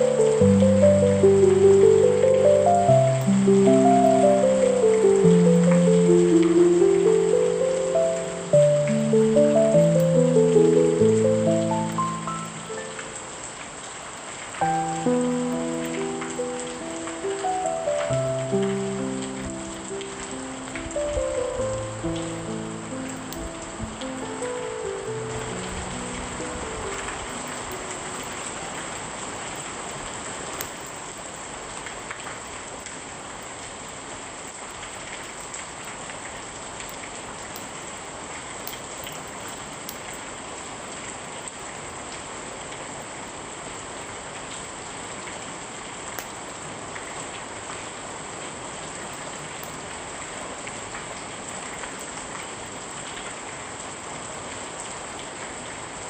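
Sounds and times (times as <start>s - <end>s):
wood fire crackling: 0.0s - 32.4s
rain falling: 0.0s - 56.0s.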